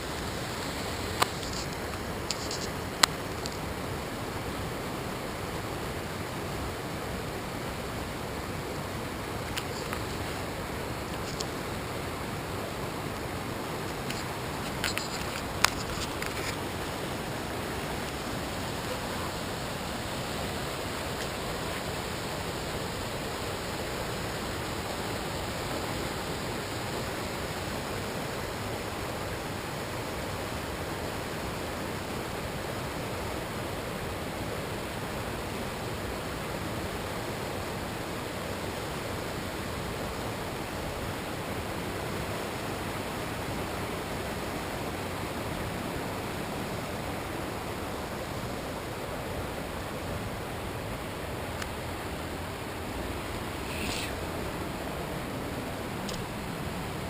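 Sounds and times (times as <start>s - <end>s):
small waterfall rushing: 0.0s - 57.0s.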